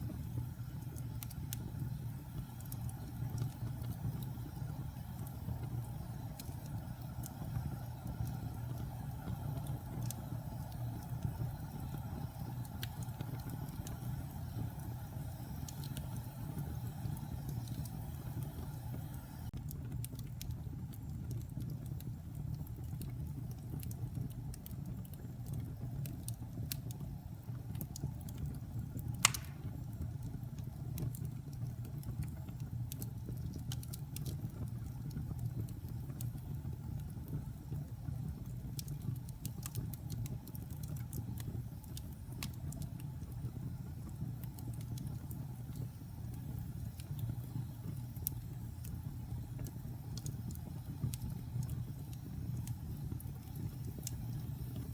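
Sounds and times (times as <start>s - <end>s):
fire crackles: 0.0s - 54.9s
wood fire rumbling: 0.0s - 54.9s
fire popping sharply: 29.0s - 30.1s.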